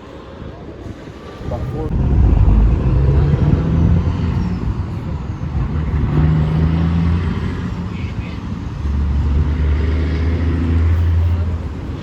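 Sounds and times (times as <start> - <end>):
truck driving past: 1.9 - 8.0.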